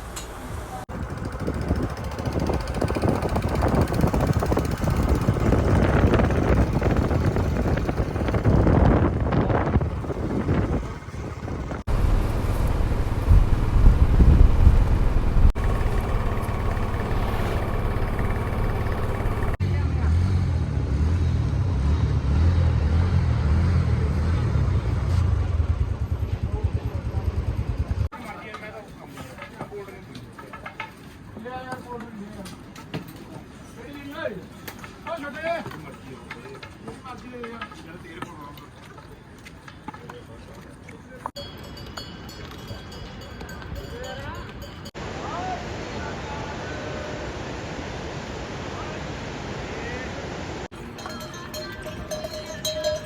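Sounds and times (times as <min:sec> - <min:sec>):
road noise: 0:00.0 - 0:28.1
motorcycle engine: 0:00.6 - 0:28.1
wind buffeting microphone: 0:00.9 - 0:19.6.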